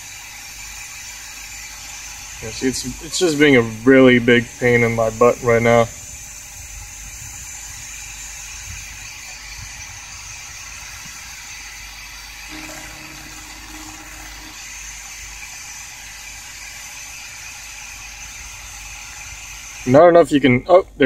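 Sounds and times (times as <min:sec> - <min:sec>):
faint low tone: 0:12.5 - 0:14.6
speaker interference hiss and hum: 0:12.5 - 0:15.1.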